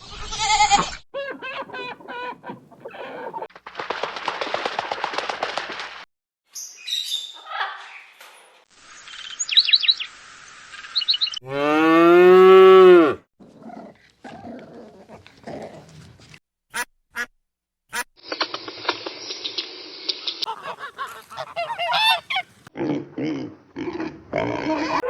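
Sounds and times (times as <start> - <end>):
cow mooing: 11.4 - 13.2.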